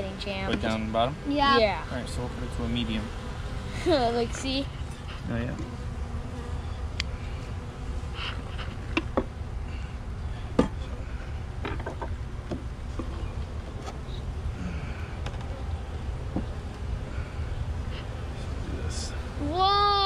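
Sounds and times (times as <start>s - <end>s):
bees buzzing: 0.0s - 20.0s
wooden hive parts knocking: 11.6s - 13.3s.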